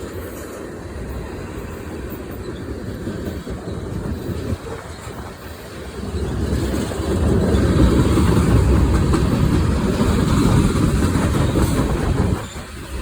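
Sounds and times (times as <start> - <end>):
freight train rumbling on rails: 0.0 - 13.0.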